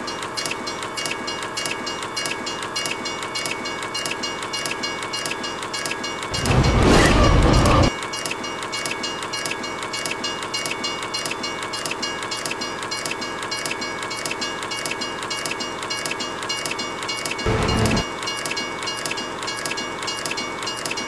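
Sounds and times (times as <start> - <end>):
train wheels clicking on rails: 0.0 - 21.0
steady high tone: 17.5 - 18.1.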